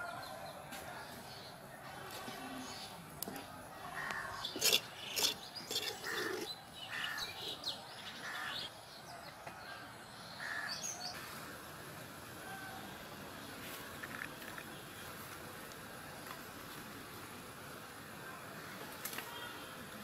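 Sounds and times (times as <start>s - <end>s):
small birds chirping: 0.1s - 11.4s.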